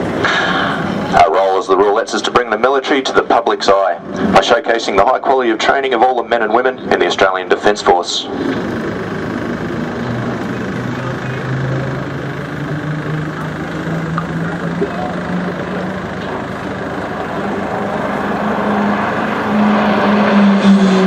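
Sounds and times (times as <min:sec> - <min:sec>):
propeller plane engine drone: 0:00.0 - 0:21.0
broad rushing noise: 0:08.2 - 0:21.0.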